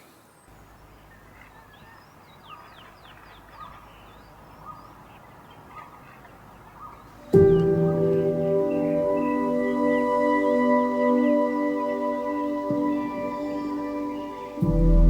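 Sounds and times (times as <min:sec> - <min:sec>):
birds calling: 0:00.0 - 0:15.0
ambient music with ringing tones: 0:06.8 - 0:15.0.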